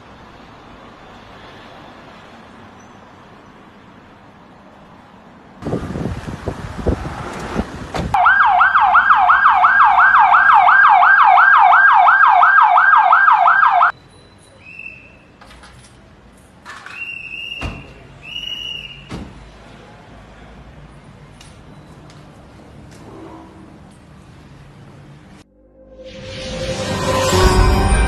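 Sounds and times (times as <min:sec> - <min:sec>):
police siren yelping: 0:08.2 - 0:13.9
short high tones: 0:25.5 - 0:28.0.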